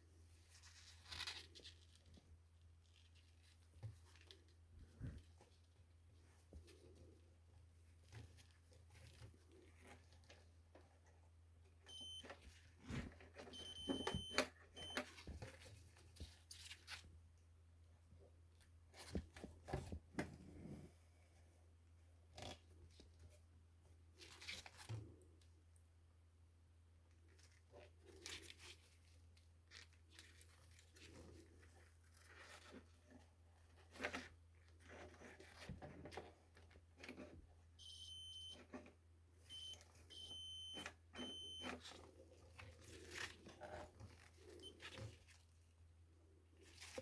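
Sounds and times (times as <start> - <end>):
rustling and crinkling: 0.1 - 11.3, 12.1 - 17.2, 18.6 - 21.5, 24.1 - 25.4, 27.1 - 37.6, 39.6 - 47.0
low steady hum: 11.3 - 15.1, 37.8 - 38.6, 39.4 - 41.8
continuity tester beeps: 11.9 - 12.4, 13.6 - 15.0, 37.8 - 38.6, 39.5 - 41.8.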